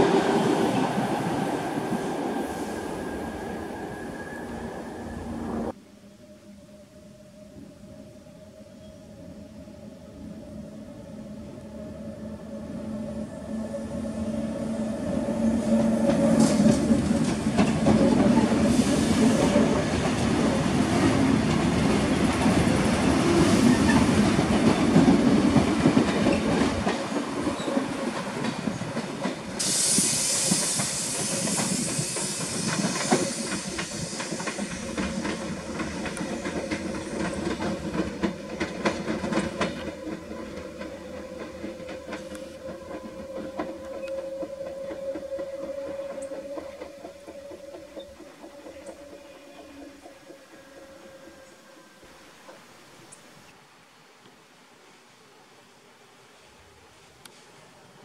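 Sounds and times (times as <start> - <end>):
train hum: 0.0 - 53.6
sharp hiss: 29.5 - 35.7
wheels clicking over rail joints: 30.5 - 51.5.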